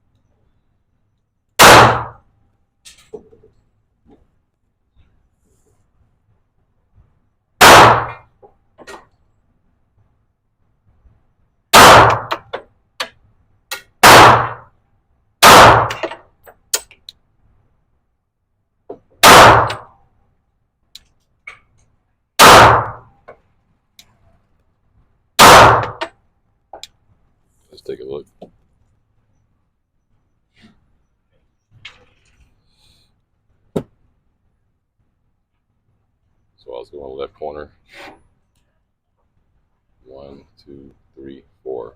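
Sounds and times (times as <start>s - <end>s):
pistol shots: 1.6s - 2.2s, 7.6s - 8.2s, 11.7s - 12.5s, 14.0s - 14.7s, 15.4s - 16.1s, 19.2s - 19.9s, 22.4s - 23.1s, 25.4s - 26.1s
small clicks: 20.9s - 22.0s.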